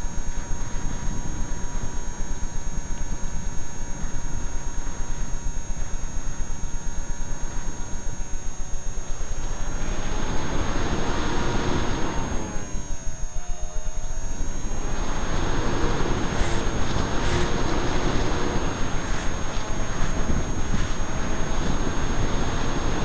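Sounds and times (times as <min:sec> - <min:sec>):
electric motor and propeller whine: 0:00.0 - 0:23.0
wind buffeting microphone: 0:09.1 - 0:13.3, 0:14.0 - 0:23.0.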